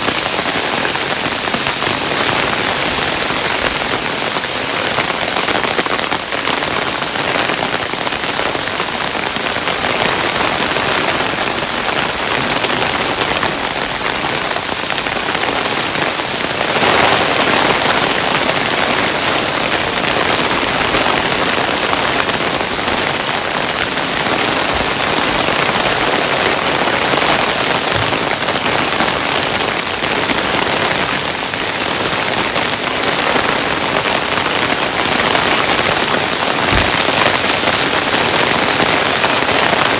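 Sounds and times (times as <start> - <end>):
hailstones rattling on a surface: 33.1 - 39.9.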